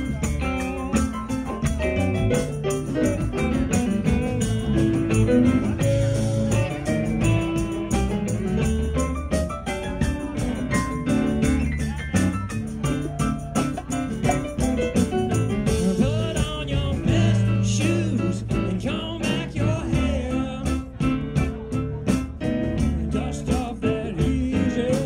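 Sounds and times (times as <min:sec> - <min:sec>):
bass guitar: 0:00.0 - 0:25.0
electric guitar with bent notes: 0:00.0 - 0:25.0
steady drum beat: 0:00.0 - 0:25.0.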